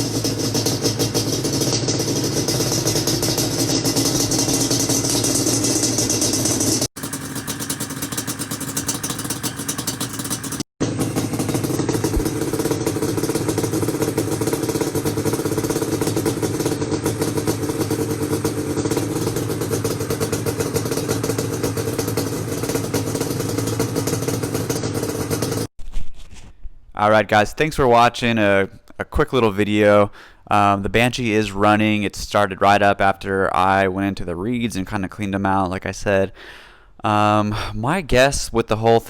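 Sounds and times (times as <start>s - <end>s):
two-stroke engine running: 0.0s - 25.7s.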